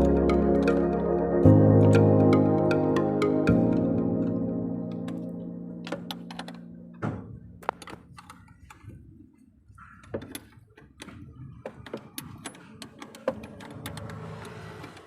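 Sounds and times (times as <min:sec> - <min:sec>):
background music: 0:00.0 - 0:08.2
hand tools clicking and knocking: 0:05.8 - 0:09.0, 0:09.8 - 0:15.0.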